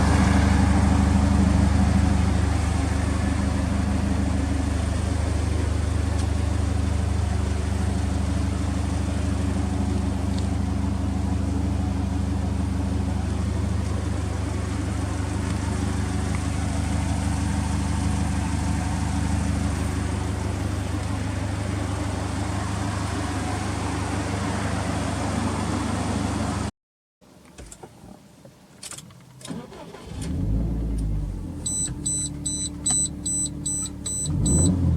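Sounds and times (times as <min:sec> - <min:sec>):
car engine idling: 0:00.0 - 0:26.7.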